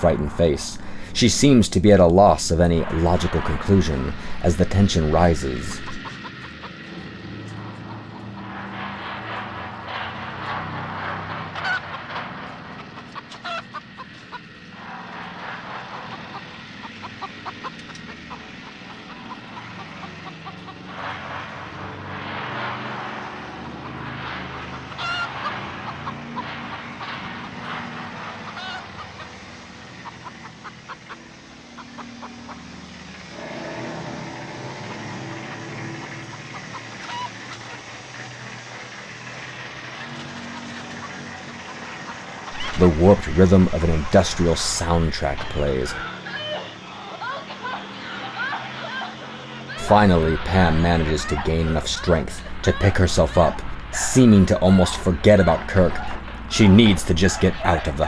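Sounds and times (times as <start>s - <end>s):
droning film score: 0.0s - 58.0s
chickens clucking and squawking: 2.2s - 6.6s.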